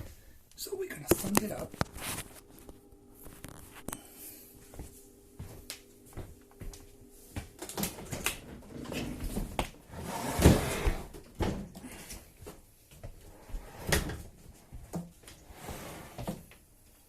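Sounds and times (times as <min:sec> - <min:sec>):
dishwasher scraping and bumping: 0:07.9 - 0:11.7, 0:15.5 - 0:16.4.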